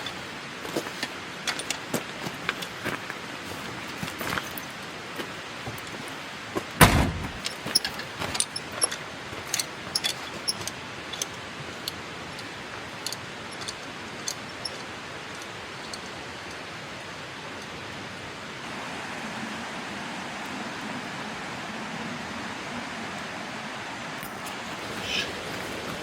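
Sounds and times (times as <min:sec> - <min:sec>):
heavy thump: 0:06.8 - 0:07.5
sharp clicks and light clinks: 0:07.4 - 0:17.7.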